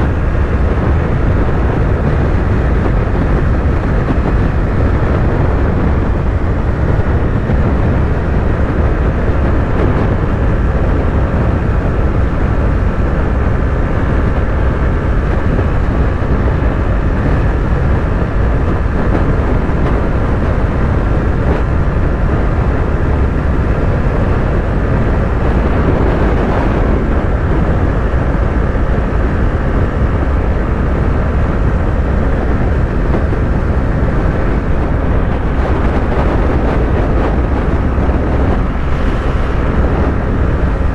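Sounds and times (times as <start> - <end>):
wind and road noise: 0.0 - 40.9
motorcycle engine cruising: 13.6 - 40.9.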